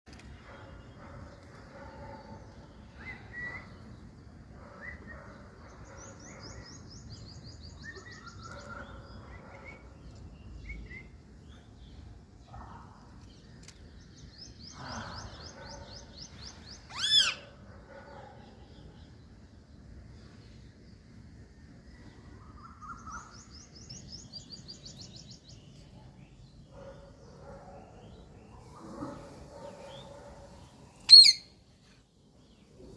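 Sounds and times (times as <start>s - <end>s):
birds chirping: 0.1s - 32.9s
sharp loud bird call: 16.9s - 17.4s, 31.1s - 31.5s
bird trills: 31.0s - 31.5s.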